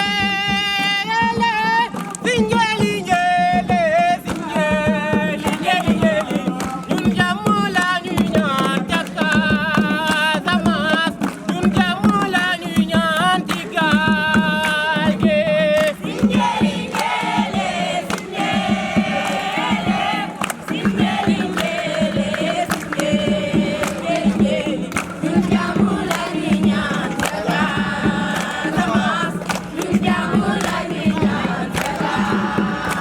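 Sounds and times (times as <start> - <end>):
group of voices singing: 0.0 - 33.0
person singing over a beat: 0.0 - 33.0.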